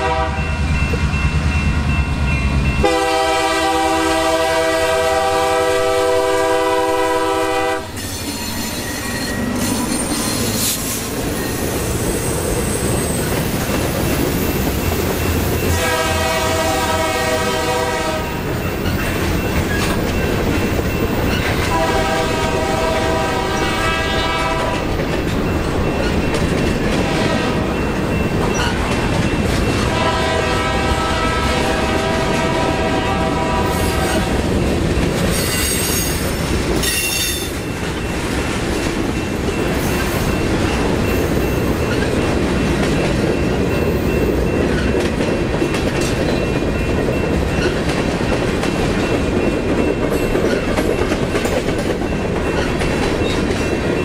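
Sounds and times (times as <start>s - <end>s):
train horn blasts: 0.0s - 0.6s, 2.8s - 8.0s, 15.7s - 18.4s, 21.7s - 24.9s, 27.0s - 27.8s, 29.8s - 34.4s
freight train wheels rumbling: 0.0s - 54.0s
high wheel squeal: 7.9s - 14.7s.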